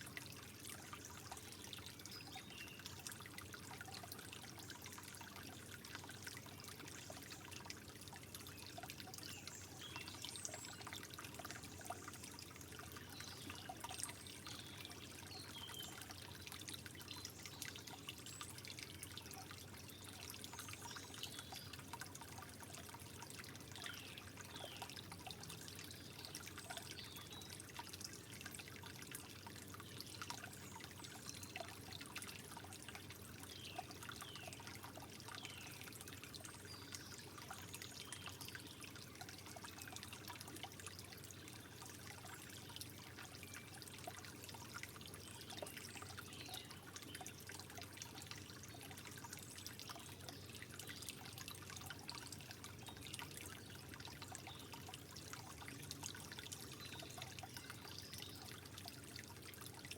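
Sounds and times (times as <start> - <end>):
trickling water: 0.0 - 59.9.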